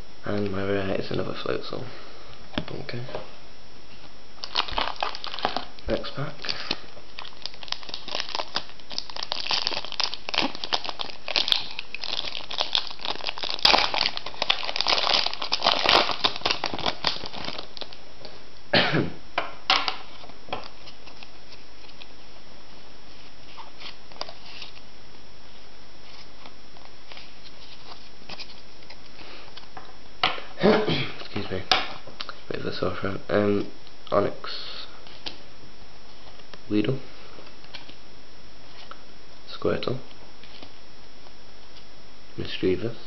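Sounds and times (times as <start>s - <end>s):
foil wrapper crinkling and tearing: 4.4s - 18.0s
person coughing: 18.7s - 19.2s, 30.6s - 31.2s.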